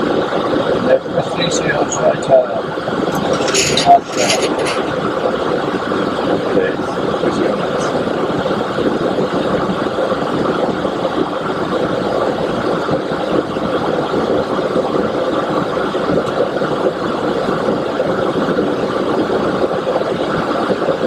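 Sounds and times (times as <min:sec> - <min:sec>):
jet engine noise: 0:00.0 - 0:21.0
airflow rush in cockpit: 0:04.3 - 0:21.0.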